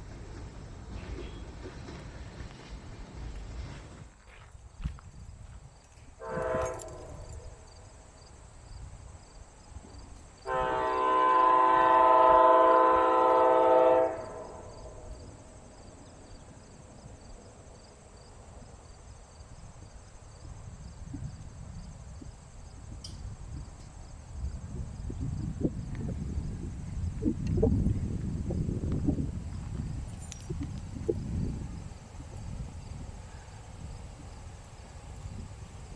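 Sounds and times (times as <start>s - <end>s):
train horn blast: 6.2s - 7.4s, 10.4s - 15.2s.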